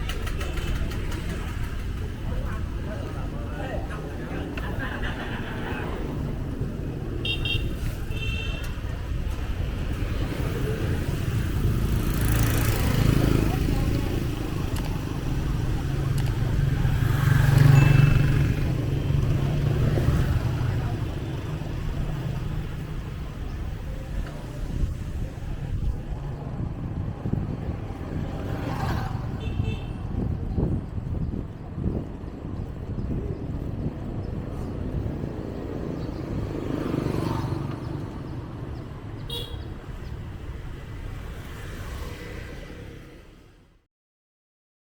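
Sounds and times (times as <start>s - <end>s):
street noise: 0.0s - 43.9s
motorbike engine passing: 9.7s - 22.8s.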